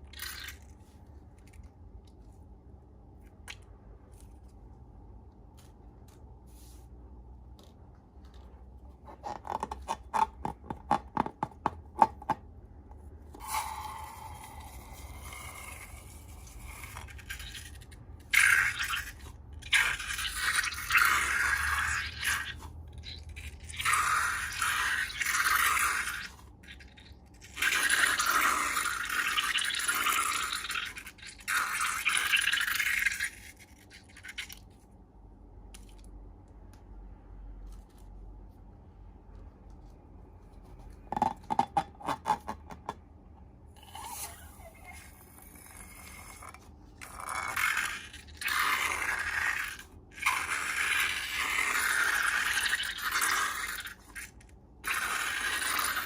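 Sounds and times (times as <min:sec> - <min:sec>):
noisy scraping of slime: 0:13.2 - 0:29.5, 0:43.7 - 0:56.0.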